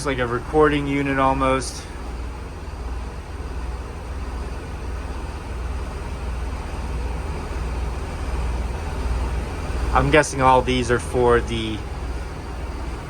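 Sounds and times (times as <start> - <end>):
machinery droning: 0.0 - 13.0.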